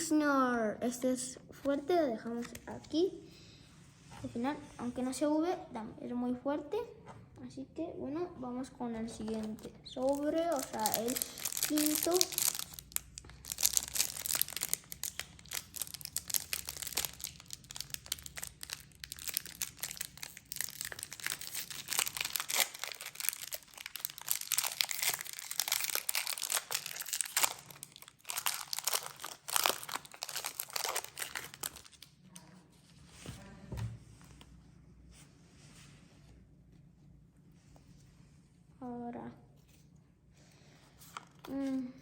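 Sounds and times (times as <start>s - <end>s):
foil wrapper tearing and crinkling: 10.0s - 32.1s.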